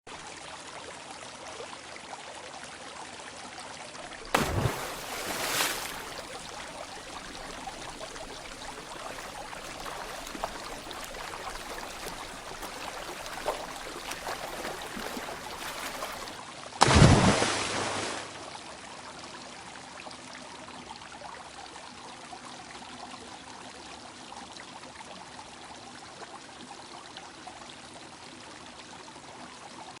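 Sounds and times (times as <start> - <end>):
mountain stream flowing: 0.2 - 19.6
stone plunking into water: 4.2 - 18.2.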